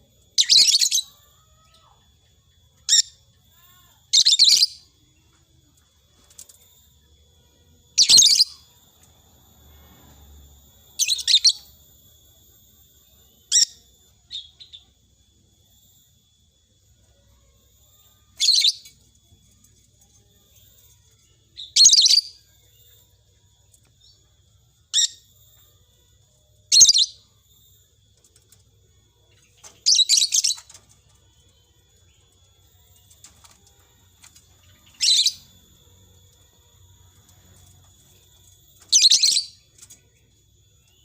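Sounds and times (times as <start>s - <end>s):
bird high chirps: 2.8s - 4.9s, 8.0s - 8.8s, 10.8s - 11.8s, 21.5s - 23.1s, 26.7s - 27.6s, 29.2s - 33.6s, 34.2s - 35.6s, 37.3s - 41.0s.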